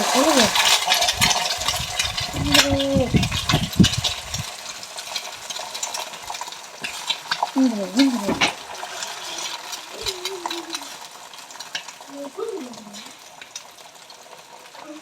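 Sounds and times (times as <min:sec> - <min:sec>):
spatula scraping a pan: 0:00.0 - 0:12.0
food sizzling in a pan: 0:00.0 - 0:15.0
wavering voice-like sound: 0:02.4 - 0:03.2, 0:09.9 - 0:11.0, 0:12.1 - 0:13.1.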